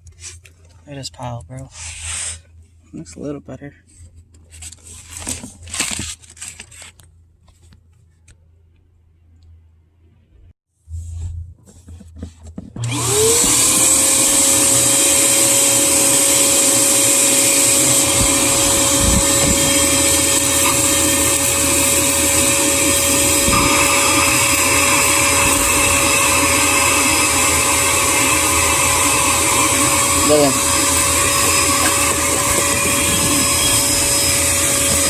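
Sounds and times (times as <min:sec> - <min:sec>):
vacuum cleaner running: 0:12.8 - 0:35.0.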